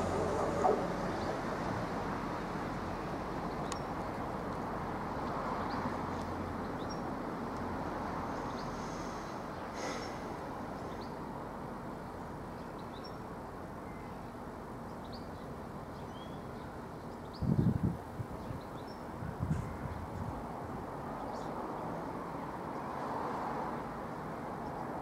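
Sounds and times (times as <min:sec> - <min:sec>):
train engine and wheels rumbling: 0:00.0 - 0:25.0
birds chirping: 0:03.4 - 0:04.6, 0:05.2 - 0:07.2, 0:08.3 - 0:22.1.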